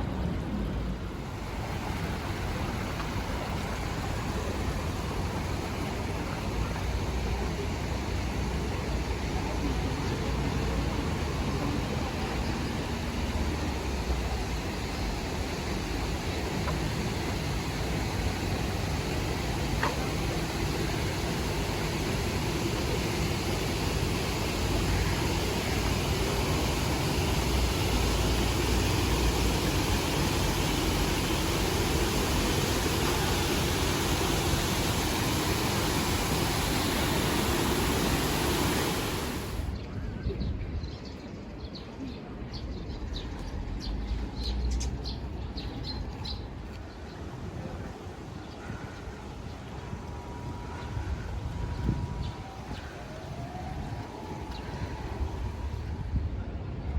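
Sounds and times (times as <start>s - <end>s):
water rushing down a stream: 0.0s - 39.8s.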